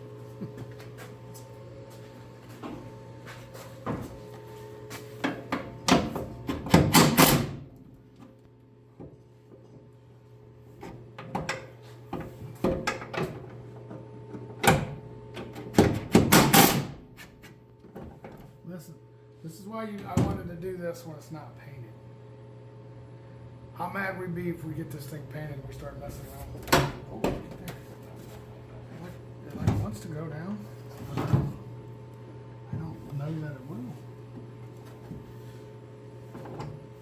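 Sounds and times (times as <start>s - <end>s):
steady hum: 18.1s - 37.0s.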